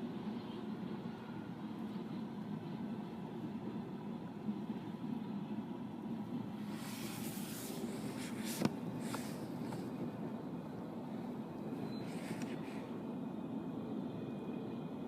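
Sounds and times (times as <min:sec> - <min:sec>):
tyres hissing on wet road: 0:06.6 - 0:10.1, 0:12.0 - 0:13.1.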